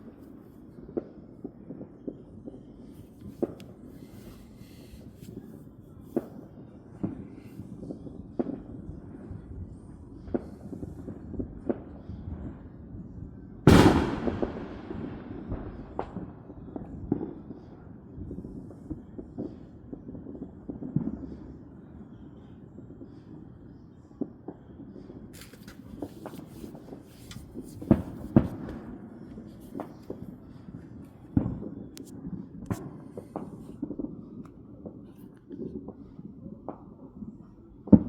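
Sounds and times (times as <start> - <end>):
loud firework blast: 13.7 - 16.2
distant firework bangs: 13.7 - 17.3, 25.7 - 32.0.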